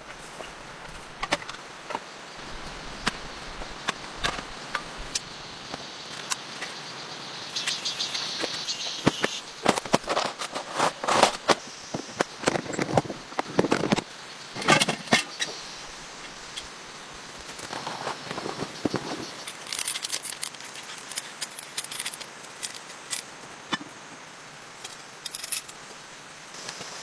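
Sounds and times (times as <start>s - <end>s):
steady rain: 0.0s - 27.0s
high pulsing buzz: 2.4s - 10.2s.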